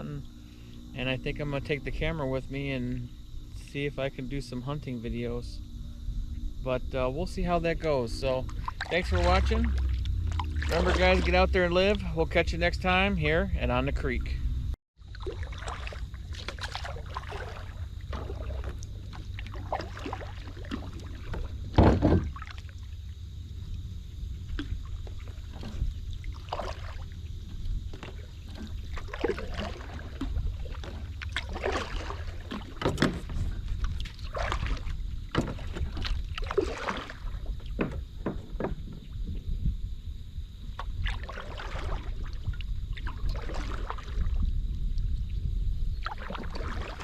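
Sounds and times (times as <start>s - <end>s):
wind rumble on microphone: 0.0s - 47.0s
paddle splashing in water: 8.2s - 13.1s, 15.0s - 23.0s, 24.4s - 39.4s, 40.7s - 44.6s, 46.0s - 47.0s
thump: 21.7s - 22.3s.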